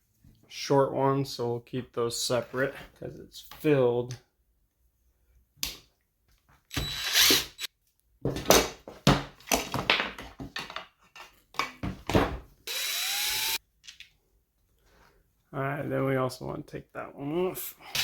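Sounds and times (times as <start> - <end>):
power drill running: 6.7 - 7.7, 12.7 - 13.6.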